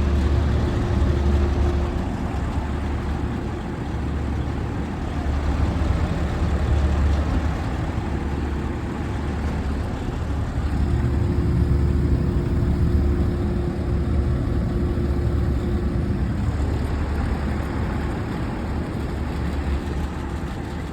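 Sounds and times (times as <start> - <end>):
air conditioners humming: 5.1 - 18.2.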